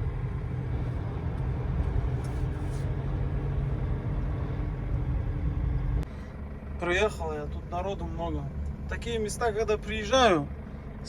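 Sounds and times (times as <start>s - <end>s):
van engine and road noise: 0.0s - 11.0s.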